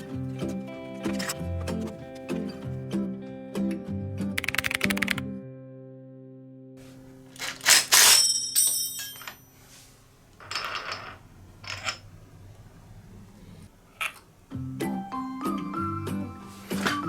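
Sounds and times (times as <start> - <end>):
soft background music: 0.0 - 7.3, 14.5 - 17.0
metallic clattering and clinking: 7.3 - 9.6, 10.4 - 12.1.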